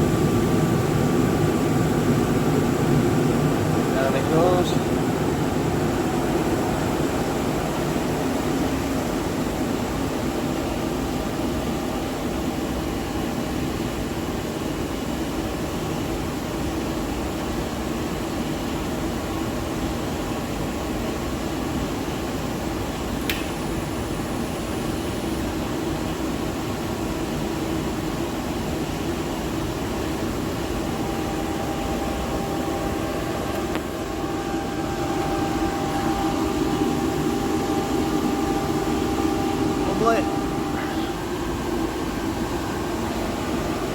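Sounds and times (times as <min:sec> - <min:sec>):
gas boiler burner roaring: 0:00.0 - 0:43.9
sharp click: 0:23.2 - 0:23.6.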